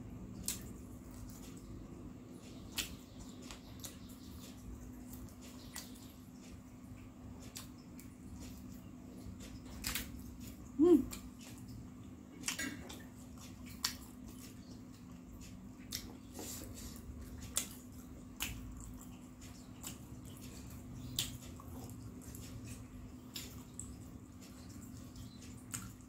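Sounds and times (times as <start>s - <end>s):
person chewing fried snacks: 7.4s - 26.0s.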